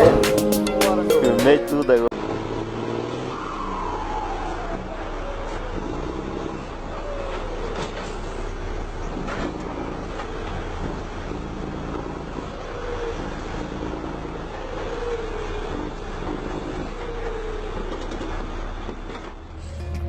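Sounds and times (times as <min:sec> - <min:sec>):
engine and road rumble: 0:02.1 - 0:20.0
whine sliding down in pitch: 0:03.3 - 0:07.7, 0:19.5 - 0:20.0.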